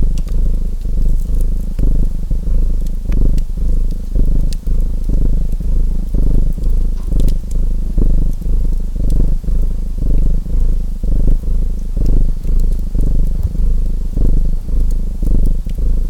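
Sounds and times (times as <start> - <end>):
cat purring: 0.0 - 16.0
wood fire crackling: 11.2 - 15.9.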